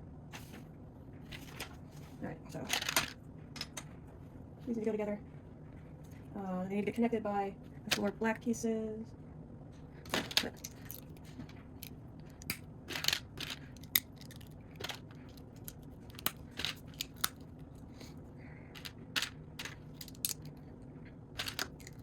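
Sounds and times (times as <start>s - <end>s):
faint low hum: 0.0s - 22.0s
plastic bricks clicking together: 10.1s - 11.3s, 12.3s - 17.5s, 18.8s - 20.5s, 21.4s - 22.0s.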